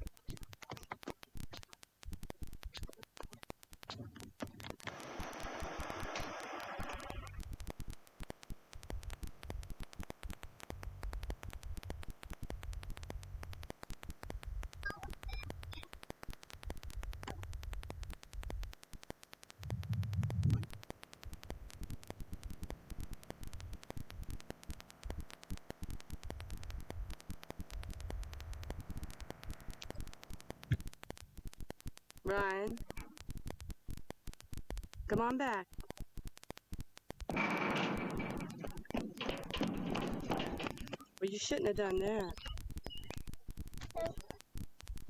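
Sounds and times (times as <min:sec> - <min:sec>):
low uneven rumbling: 0:19.6 - 0:25.1.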